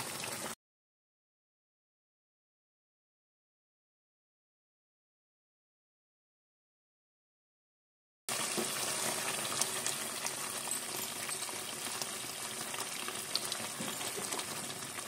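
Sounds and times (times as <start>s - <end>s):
food sizzling in a pot: 0.0s - 0.6s, 8.3s - 15.0s.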